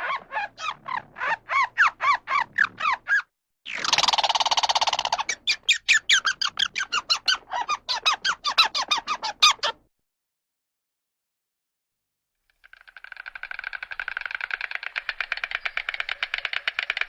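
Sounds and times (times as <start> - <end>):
bird squawking: 0.0 - 9.8.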